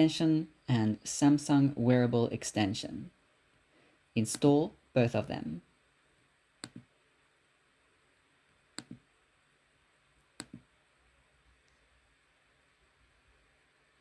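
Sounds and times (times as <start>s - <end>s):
computer mouse clicking: 6.6s - 6.9s, 8.8s - 9.1s, 10.3s - 10.7s.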